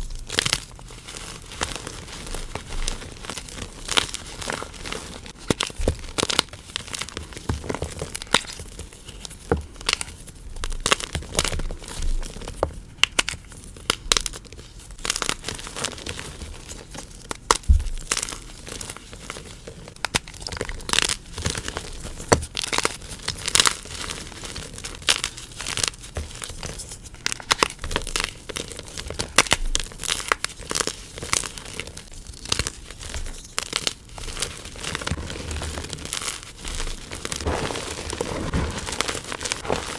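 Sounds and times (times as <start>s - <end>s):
chalk cubes being crushed: 33.6s - 39.9s.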